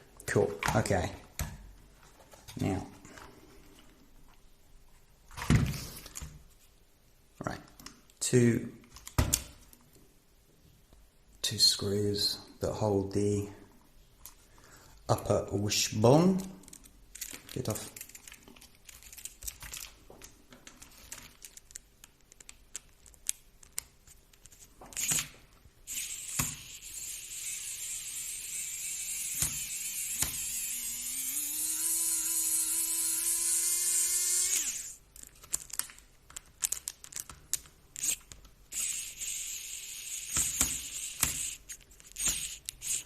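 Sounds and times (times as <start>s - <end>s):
electric screwdriver hum: 25.9s - 35.0s, 38.0s - 43.0s.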